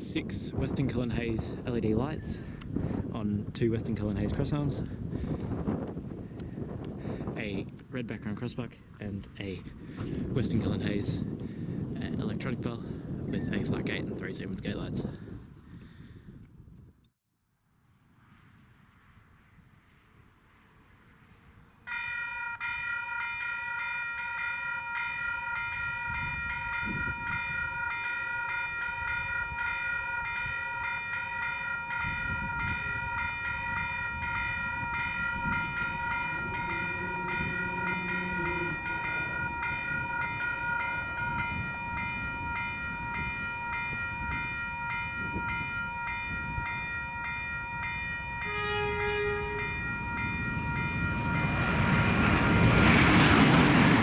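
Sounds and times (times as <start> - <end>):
level crossing bells ringing: 21.9 - 52.7
train rumbling: 32.8 - 44.0, 48.2 - 54.0
train horn: 36.2 - 39.4, 48.4 - 50.0.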